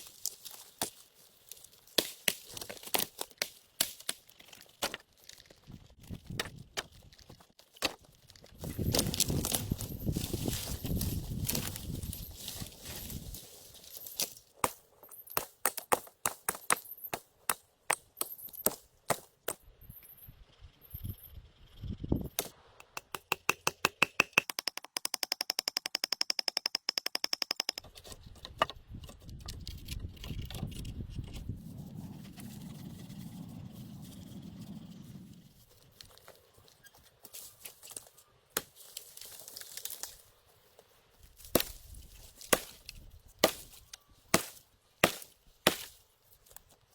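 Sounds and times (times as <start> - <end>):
sticks knocking and cracking: 0.0 - 13.3, 22.4 - 31.4, 37.2 - 40.2, 41.4 - 46.8.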